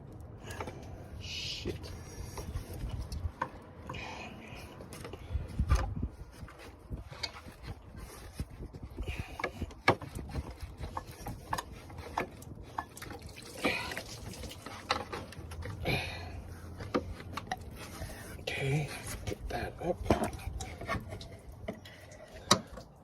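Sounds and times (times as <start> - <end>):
scraping or rustling: 1.6 - 15.8.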